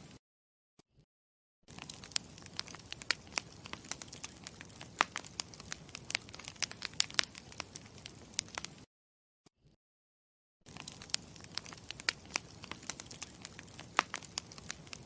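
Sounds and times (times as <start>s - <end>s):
campfire crackling: 1.7s - 8.8s, 10.7s - 15.0s.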